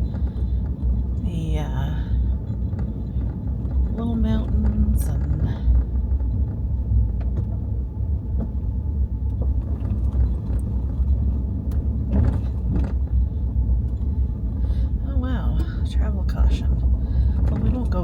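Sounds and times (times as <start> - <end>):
tyres rumbling on dirt road: 0.0 - 18.0
small clicks and rattles: 9.3 - 13.2.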